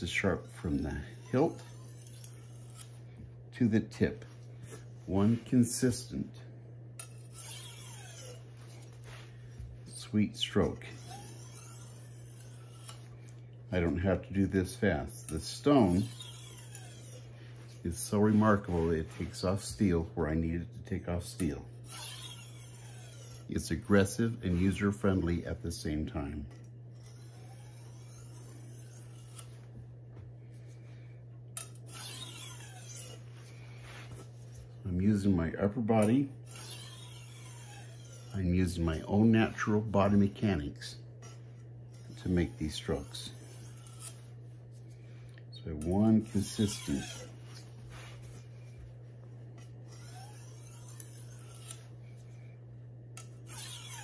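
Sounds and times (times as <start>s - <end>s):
steady low hum: 0.0s - 54.0s
knife scraping on sharpening stone: 0.1s - 3.0s, 7.0s - 9.2s, 10.7s - 13.1s, 15.2s - 17.8s, 21.9s - 23.5s, 26.9s - 29.6s, 31.6s - 33.4s, 36.0s - 38.5s, 41.2s - 44.3s, 45.8s - 48.8s, 49.6s - 52.2s, 53.2s - 54.0s.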